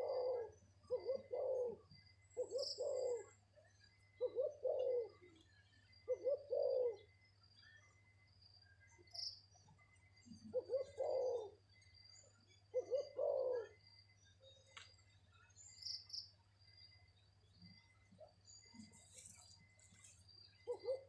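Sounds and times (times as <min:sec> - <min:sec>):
dove cooing: 0:00.0 - 0:07.2, 0:10.2 - 0:11.8, 0:12.6 - 0:13.9, 0:20.6 - 0:21.0
insect trill: 0:00.0 - 0:21.0
small birds chirping: 0:00.0 - 0:21.0.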